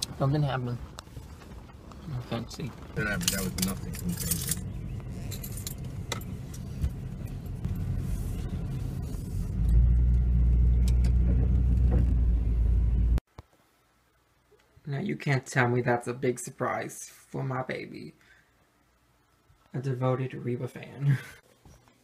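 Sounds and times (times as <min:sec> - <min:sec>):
car engine and road rumble: 0:00.0 - 0:13.2.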